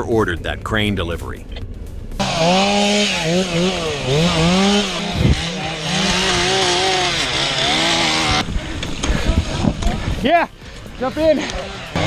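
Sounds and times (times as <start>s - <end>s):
chainsaw running at high revs: 2.2s - 10.2s, 10.9s - 12.0s.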